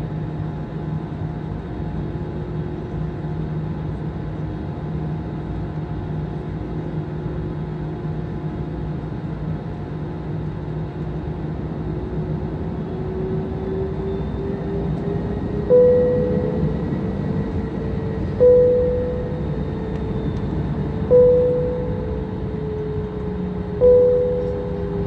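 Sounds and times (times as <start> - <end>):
jet engine rumble in cabin: 0.0 - 25.0
steady tones: 15.7 - 17.6, 18.3 - 20.4, 21.0 - 22.8, 23.8 - 25.0.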